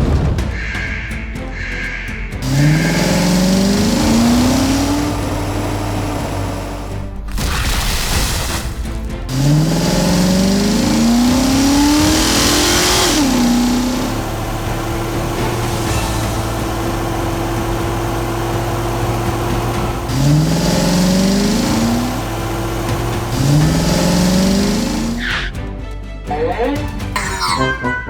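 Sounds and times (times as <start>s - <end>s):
cartoon vehicle engine revving: 2.4s - 8.5s, 9.3s - 25.6s.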